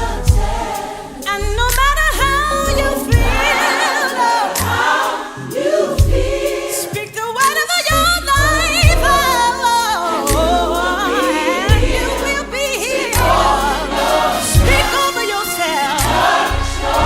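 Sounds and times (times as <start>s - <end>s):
music with bass beat: 0.0s - 3.7s, 8.1s - 15.1s
choir singing: 0.0s - 17.0s
drum hit: 3.1s - 3.6s, 6.0s - 6.4s, 8.8s - 9.4s, 11.7s - 12.2s, 14.6s - 15.1s.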